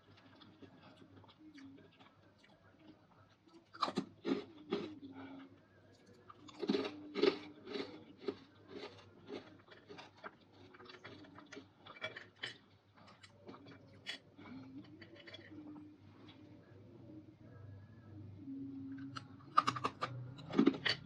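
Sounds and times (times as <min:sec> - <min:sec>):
crunching dried fruit: 0:06.0 - 0:13.8.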